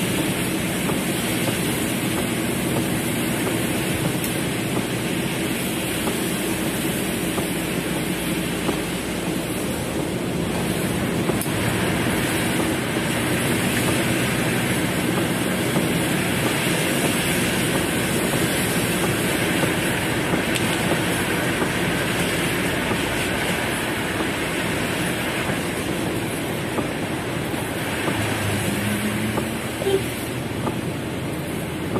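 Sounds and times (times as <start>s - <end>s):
heavy rain on car roof: 0.0s - 31.9s.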